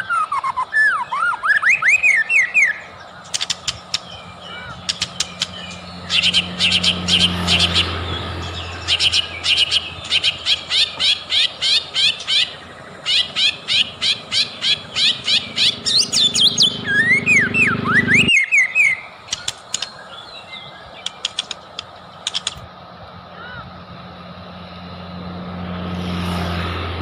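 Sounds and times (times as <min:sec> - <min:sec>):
bird swooping whistles: 0:00.0 - 0:20.3
bird singing sharp chirps: 0:00.0 - 0:22.6.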